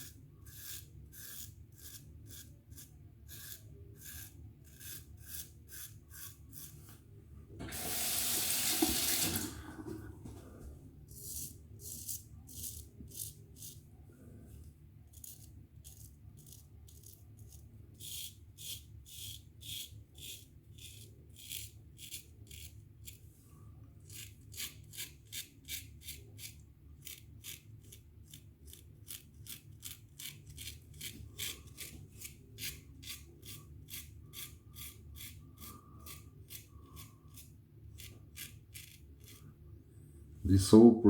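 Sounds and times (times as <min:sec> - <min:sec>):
razor scraping stubble: 0:00.0 - 0:07.0, 0:24.1 - 0:39.5.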